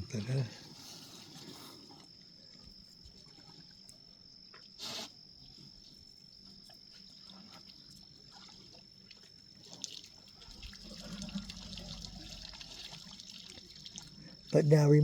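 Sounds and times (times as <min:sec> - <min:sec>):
water trickling and splashing: 0:07.0 - 0:15.0.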